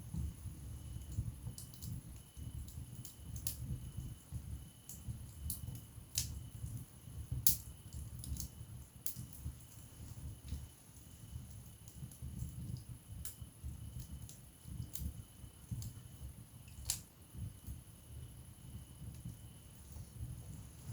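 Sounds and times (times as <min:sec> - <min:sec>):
rumble of fire flames: 0:00.0 - 0:20.9
logs crackling and popping: 0:04.9 - 0:16.0, 0:16.6 - 0:17.1.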